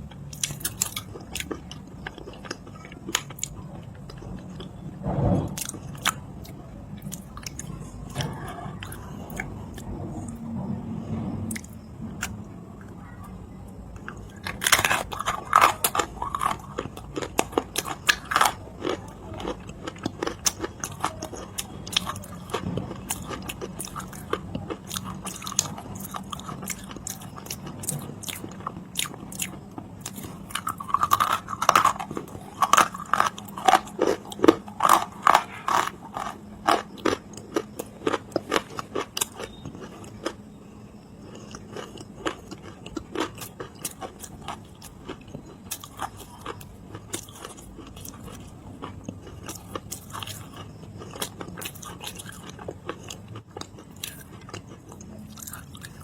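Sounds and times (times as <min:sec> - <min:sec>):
faint steady hum: 0:00.0 - 0:56.0
clay being chewed: 0:41.2 - 0:56.0.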